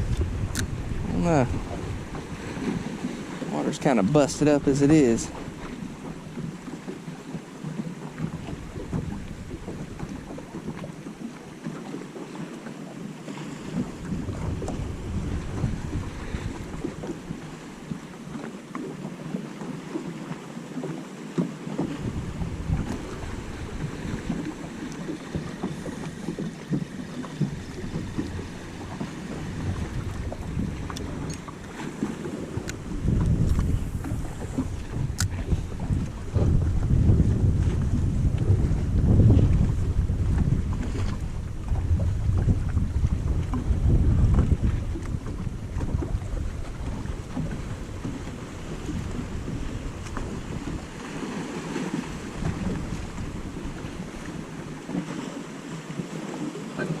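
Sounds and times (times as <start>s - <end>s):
wind buffeting microphone: 0.0s - 12.0s, 13.2s - 18.4s, 21.7s - 57.0s
water lapping against boat hull: 0.0s - 57.0s.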